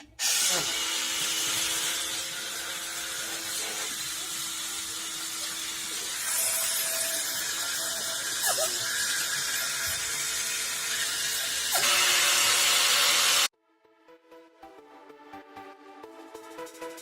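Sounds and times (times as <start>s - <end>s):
small electric motor whining: 0.2s - 13.5s.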